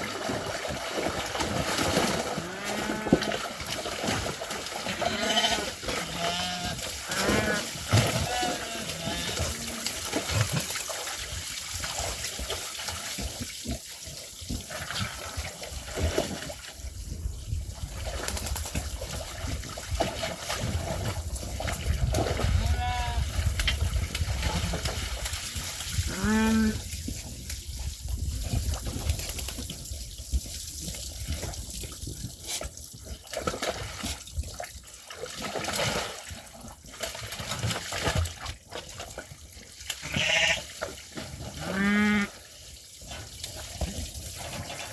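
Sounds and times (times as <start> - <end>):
sheep and lambs bleating: 4.9 - 9.8, 40.0 - 40.6, 41.6 - 42.3.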